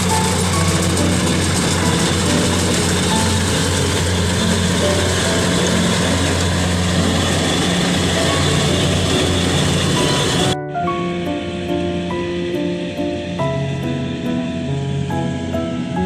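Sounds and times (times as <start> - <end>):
harvester engine roaring: 0.0 - 10.6.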